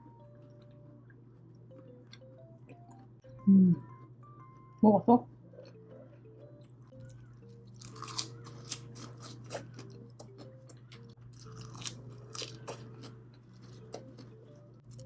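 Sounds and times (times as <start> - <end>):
soft background music: 0.0 - 15.0
chewing and biting crunches: 6.9 - 15.0.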